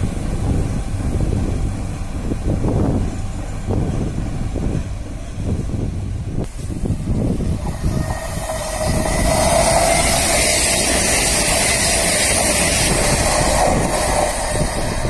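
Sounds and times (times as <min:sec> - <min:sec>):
train passing at speed: 0:00.0 - 0:15.0.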